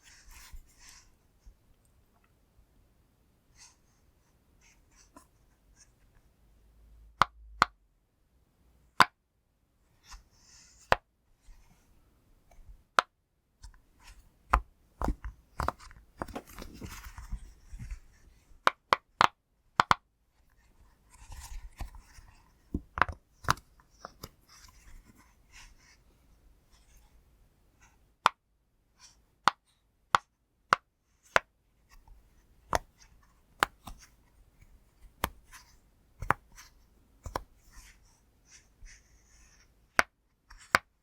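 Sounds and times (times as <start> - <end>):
rubbing and handling sounds: 0.0 - 1.6, 13.6 - 18.8, 20.3 - 28.2, 31.0 - 41.0.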